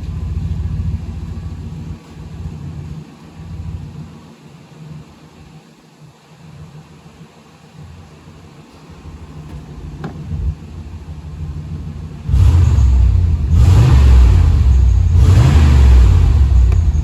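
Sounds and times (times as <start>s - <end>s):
engine idling and revving: 0.0s - 4.3s, 8.9s - 17.0s.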